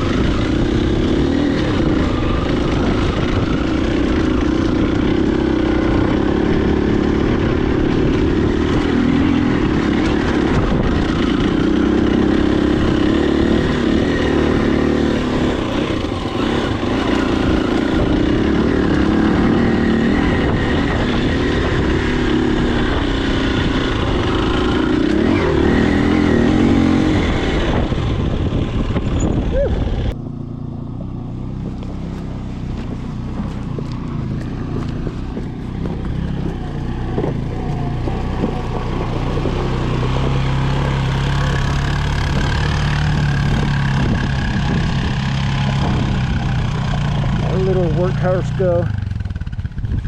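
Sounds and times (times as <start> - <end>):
dirt bike engine revving: 0.0 - 50.0.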